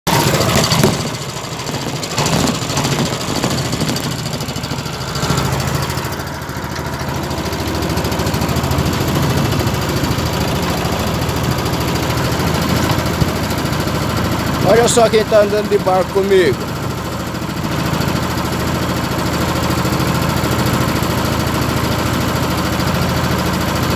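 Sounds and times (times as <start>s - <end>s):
boat engine humming: 0.1s - 23.9s
knocks: 0.3s - 5.6s.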